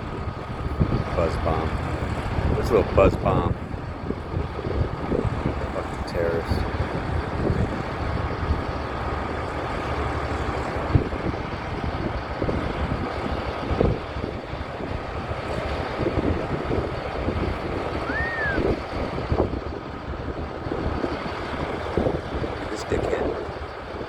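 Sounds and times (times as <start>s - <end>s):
motor vehicle rumble: 0.0s - 24.0s
wind buffeting microphone: 0.0s - 24.0s
rising and falling whistle: 18.0s - 18.8s.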